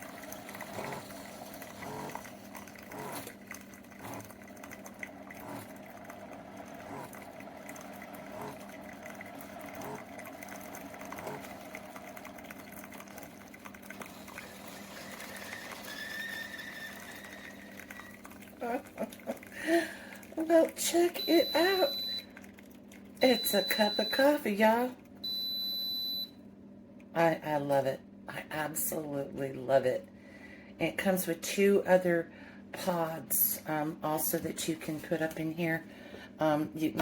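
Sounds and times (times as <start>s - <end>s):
coffee sputtering and dripping: 0.0s - 26.4s
coffee maker pump hum: 0.0s - 26.5s.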